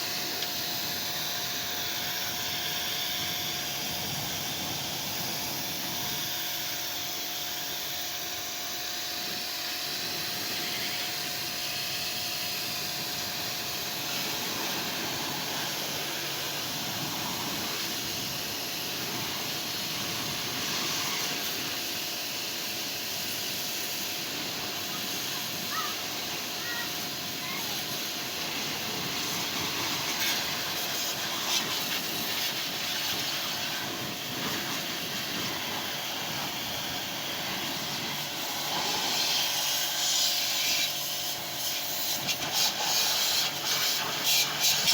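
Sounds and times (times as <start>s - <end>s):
water spraying hiss: 9.2s - 44.9s.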